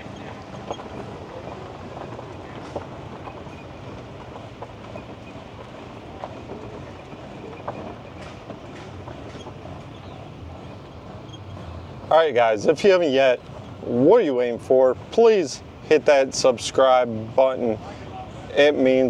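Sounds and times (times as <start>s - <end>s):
rattles and clicks: 0.0s - 13.8s
golf cart rumbling: 0.0s - 19.0s.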